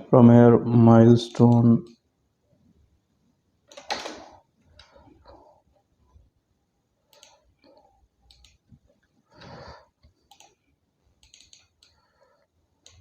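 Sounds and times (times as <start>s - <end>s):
faint computer mouse clicks: 7.1s - 8.6s, 10.3s - 10.6s, 11.2s - 12.0s.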